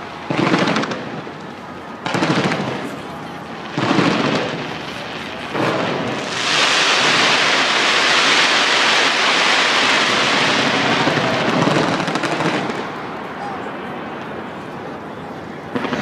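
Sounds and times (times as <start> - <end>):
fireworks crackling: 0.0 - 16.0
firework bang: 0.2 - 3.1, 3.7 - 13.0, 15.7 - 16.0.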